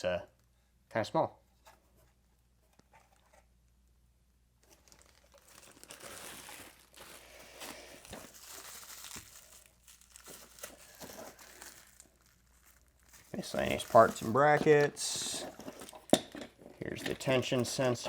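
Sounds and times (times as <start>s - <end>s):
packaging crinkling: 4.6s - 18.0s.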